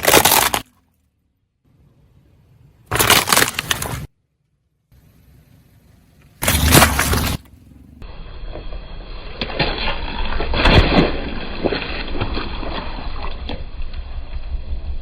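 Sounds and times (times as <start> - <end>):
tyre crushing objects: 0.0 - 0.8, 2.9 - 4.1, 6.4 - 7.5
low engine rumble: 4.8 - 9.6.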